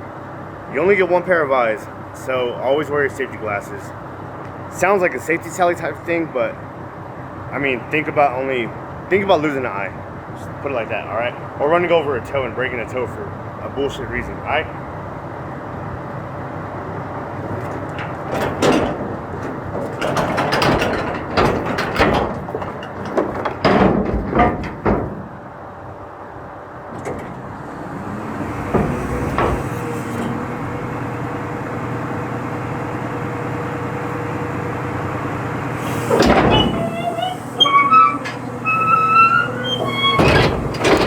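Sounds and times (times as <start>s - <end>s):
truck engine humming: 0.0s - 41.0s
metal clanking and banging: 17.2s - 25.6s, 28.0s - 31.6s, 33.9s - 41.0s.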